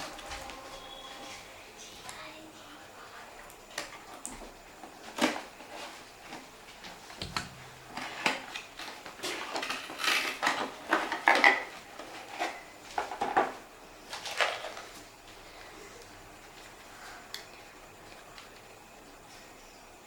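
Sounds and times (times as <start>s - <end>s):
plastic parts clicking and rattling: 8.0s - 13.4s.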